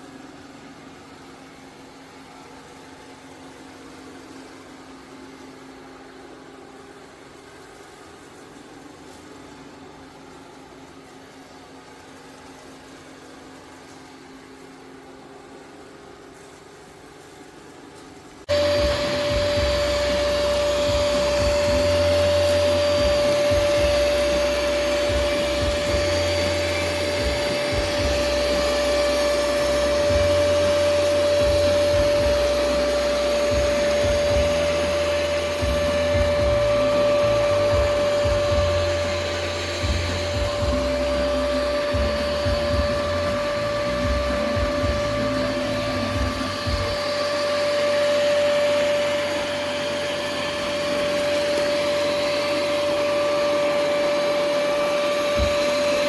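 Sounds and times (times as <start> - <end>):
robot vacuum suction motor: 18.5 - 56.0.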